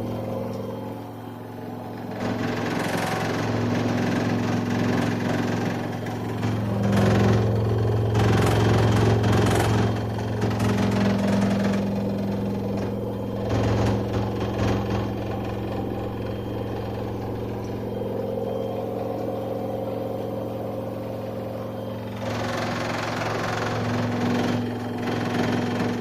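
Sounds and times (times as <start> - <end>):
high-pitched whine: 0.0 - 26.0
washing machine spinning: 0.0 - 26.0.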